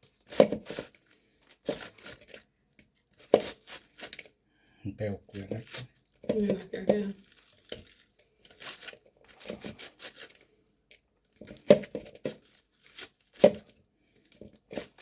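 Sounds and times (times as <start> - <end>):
slicer scraping cabbage: 0.0 - 2.4, 3.2 - 4.3, 8.5 - 10.4, 11.4 - 13.7, 14.4 - 15.0.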